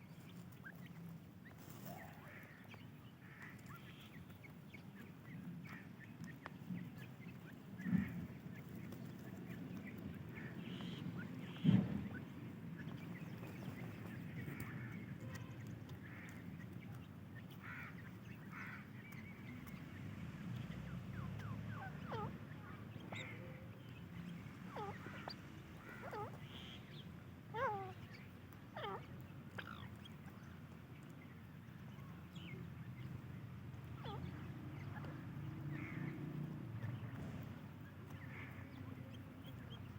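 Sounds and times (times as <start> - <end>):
chicks chirping: 0.0 - 27.0.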